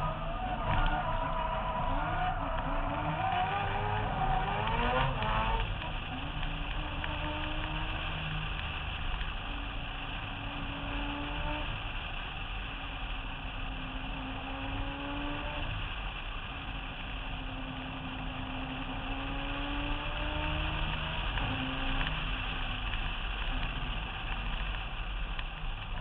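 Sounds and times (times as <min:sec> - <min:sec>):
car engine accelerating: 0:00.0 - 0:26.0
wind and road noise: 0:00.0 - 0:26.0.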